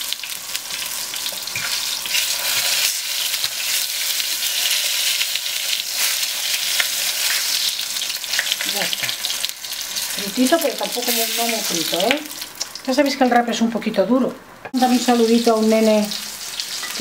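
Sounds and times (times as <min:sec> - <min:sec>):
fish sizzling in hot oil: 0:00.0 - 0:13.3, 0:14.8 - 0:17.0.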